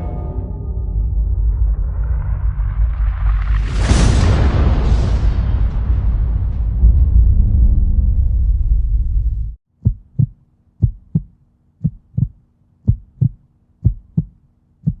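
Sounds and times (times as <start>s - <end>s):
loud low rumble: 0.8s - 10.1s
heartbeat thumps: 9.8s - 15.0s.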